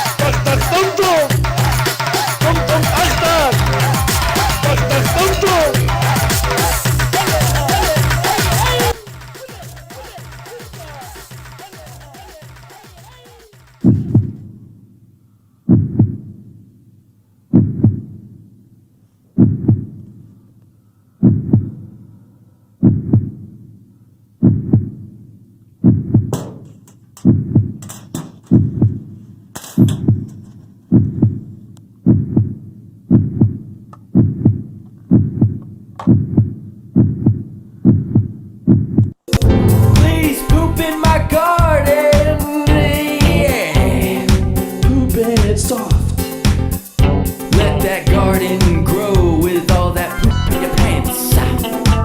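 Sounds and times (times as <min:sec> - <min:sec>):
deep heartbeat-like thumps: 0:39.4 - 0:52.0.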